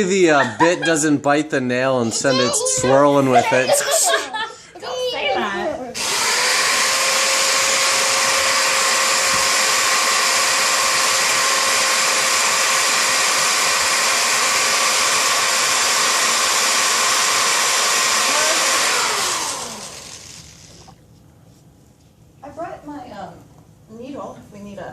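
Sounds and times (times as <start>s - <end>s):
electric drill whining: 6.0s - 21.0s.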